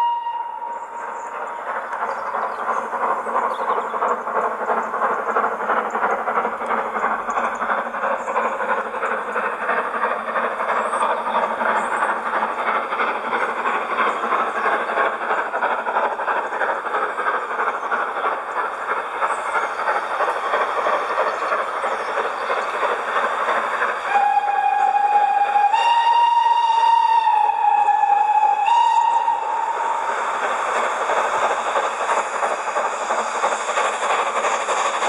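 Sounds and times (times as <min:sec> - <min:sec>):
steam whistle: 0:00.0 - 0:01.3, 0:24.0 - 0:30.2
steam locomotive exhaust through loudspeaker: 0:00.0 - 0:35.0.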